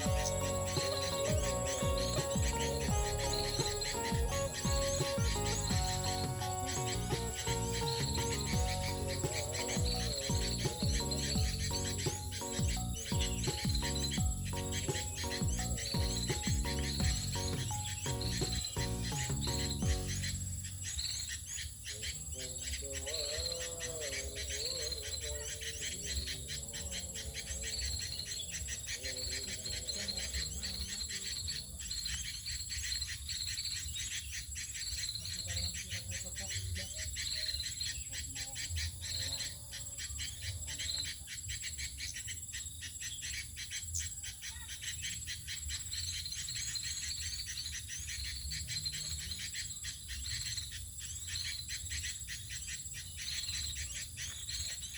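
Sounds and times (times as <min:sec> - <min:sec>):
insects chirping: 0:00.0 - 0:54.9.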